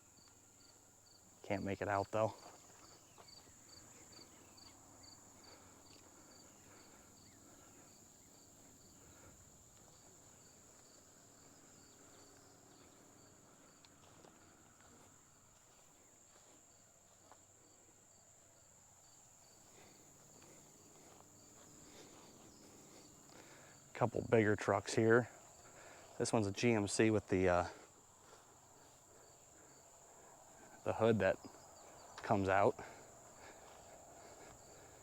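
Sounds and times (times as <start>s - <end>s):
cricket chirping: 0.0s - 35.0s
high insect buzz: 2.4s - 23.9s.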